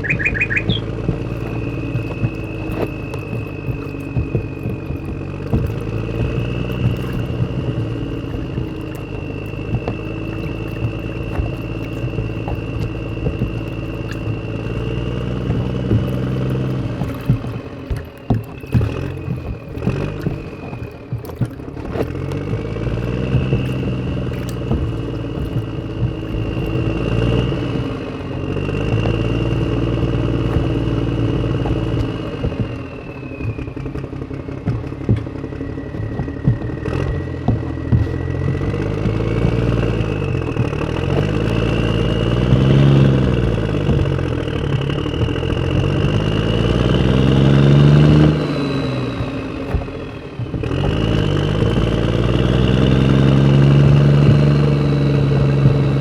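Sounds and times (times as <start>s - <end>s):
small motor running: 0.0s - 56.0s.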